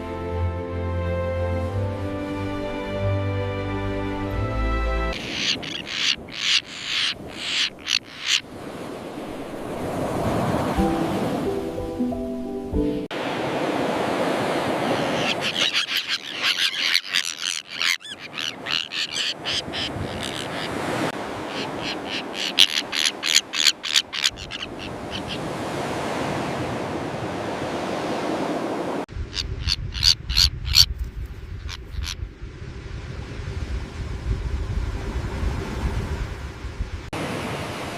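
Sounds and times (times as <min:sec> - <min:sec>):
wind: 0:00.0 - 0:37.9
surf: 0:01.0 - 0:30.8
terns calling: 0:05.1 - 0:09.2, 0:14.8 - 0:25.6, 0:29.2 - 0:30.9, 0:31.6 - 0:32.2.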